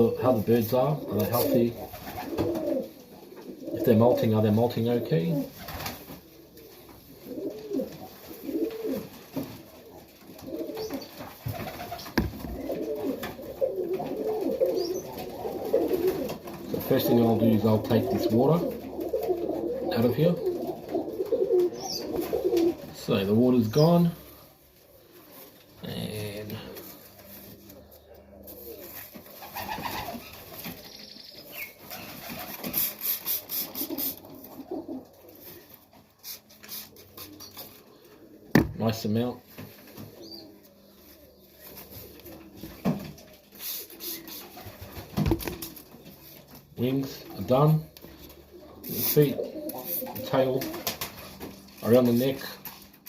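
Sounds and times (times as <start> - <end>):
pigeons cooing: 0.0 - 53.0
spray bottle spurts: 32.7 - 34.2
sharp knock: 38.5 - 38.8.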